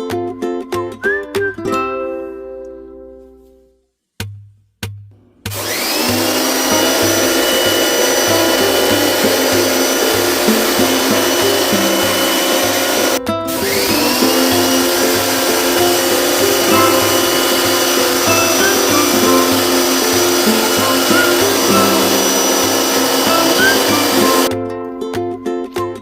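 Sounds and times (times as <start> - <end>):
background music with beat: 0.0 - 26.0
pressure washer pump whining: 5.5 - 24.5.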